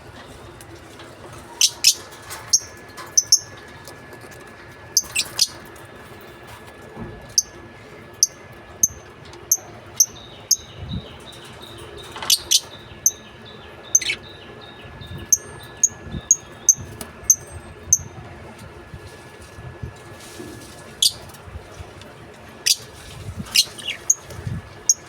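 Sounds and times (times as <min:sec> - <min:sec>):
lovebirds chirping: 0:01.6 - 0:03.5, 0:08.2 - 0:18.0.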